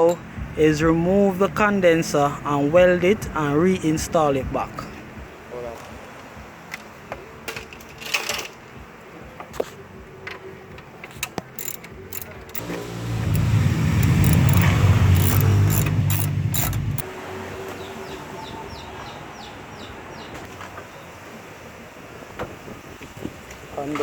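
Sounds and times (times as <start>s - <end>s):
metallic tool clicks and knocks: 11.3s - 12.6s, 14.0s - 17.1s
loud low mechanical running: 11.6s - 17.1s.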